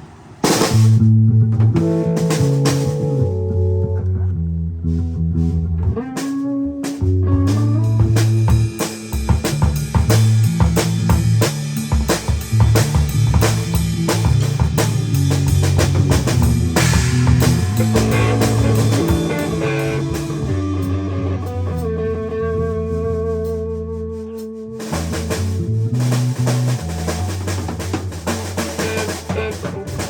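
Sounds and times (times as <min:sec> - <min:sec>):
drum kit playing: 0:00.4 - 0:03.9, 0:05.8 - 0:23.6, 0:24.3 - 0:30.0
guitar and bass notes: 0:00.6 - 0:30.0
cymbal crash: 0:16.8 - 0:21.2.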